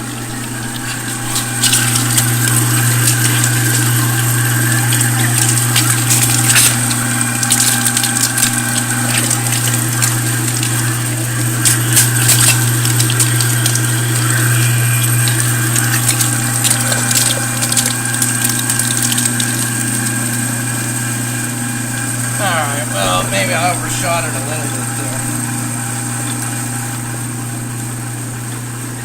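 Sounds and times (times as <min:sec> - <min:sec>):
meat grinder motor hum: 0:00.0 - 0:29.0
clicks and crackles: 0:00.8 - 0:20.4.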